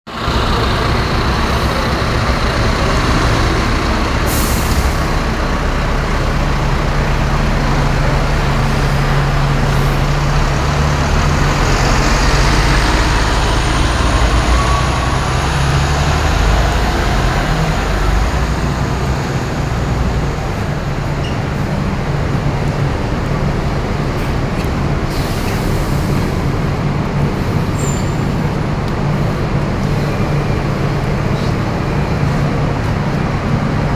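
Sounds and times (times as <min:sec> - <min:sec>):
bus diesel engine running: 0:00.1 - 0:33.9
short air hisses: 0:04.3 - 0:05.1.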